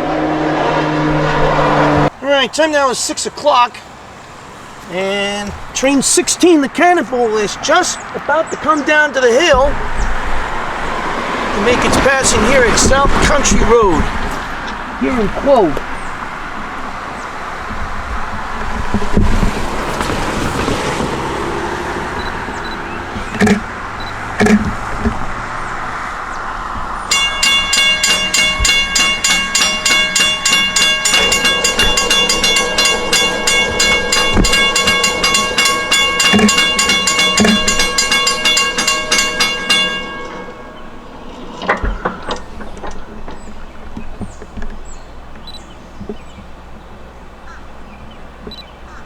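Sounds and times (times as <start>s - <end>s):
train rolling past: 9.2s - 45.7s
sharp knocks: 9.3s - 46.5s
train horn chord: 27.1s - 41.6s.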